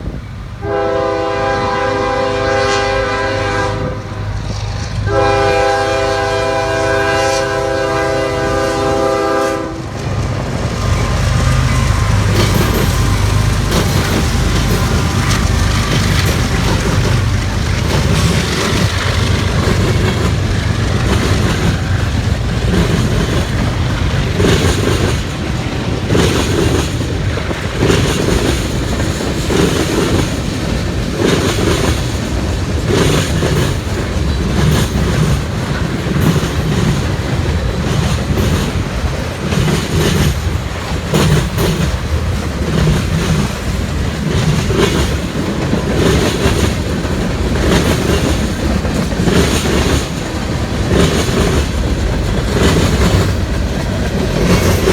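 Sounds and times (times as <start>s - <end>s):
train low rumble: 0.0s - 54.9s
train wheels clacking over rails: 0.0s - 54.9s.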